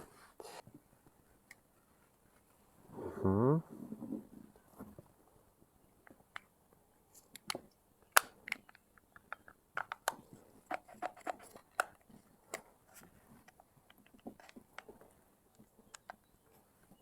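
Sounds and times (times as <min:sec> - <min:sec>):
plastic parts clicking and knocking: 0:07.3 - 0:16.3.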